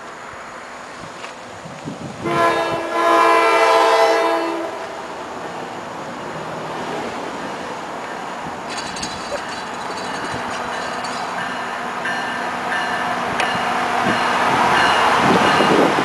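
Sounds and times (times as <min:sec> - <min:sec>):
train rumbling past: 0:00.0 - 0:16.0
train air horn blast: 0:02.2 - 0:05.0.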